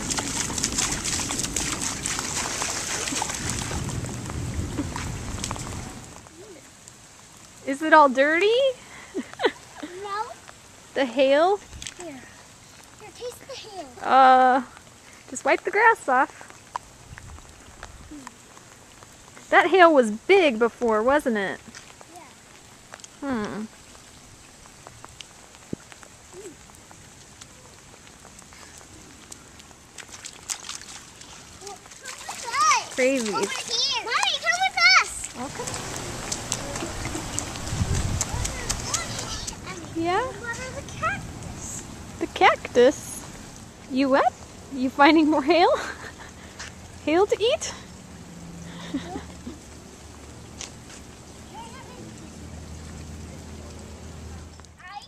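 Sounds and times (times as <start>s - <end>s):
heavy rain falling: 0.0s - 55.0s
drips and taps: 27.3s - 41.5s.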